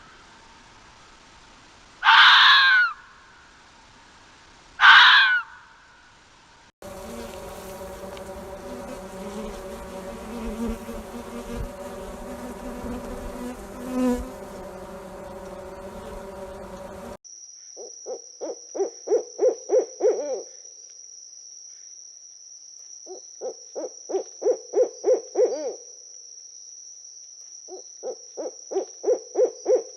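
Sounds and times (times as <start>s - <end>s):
buzzing drone of flying insects: 6.8s - 17.2s
high-pitched insect trill: 6.9s - 29.9s.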